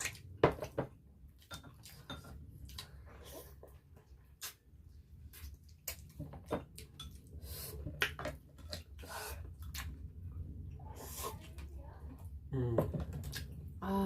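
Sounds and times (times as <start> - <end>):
wet chewing: 0.0 - 11.6.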